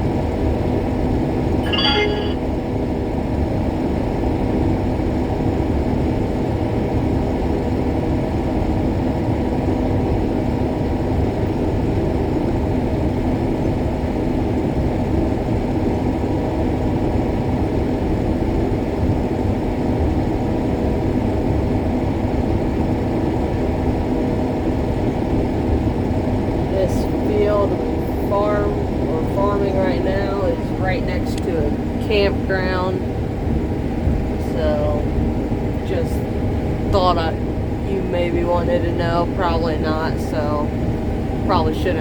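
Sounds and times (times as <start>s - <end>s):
combine harvester droning: 26.6s - 42.0s.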